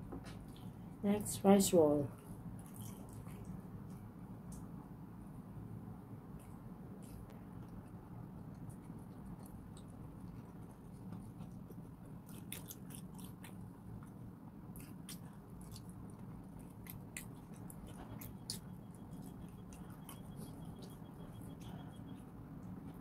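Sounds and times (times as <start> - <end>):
steady low hum: 0.0 - 23.0
chewing with mouth clicks: 2.4 - 4.8, 6.4 - 23.0
lip smacks: 8.5 - 20.8.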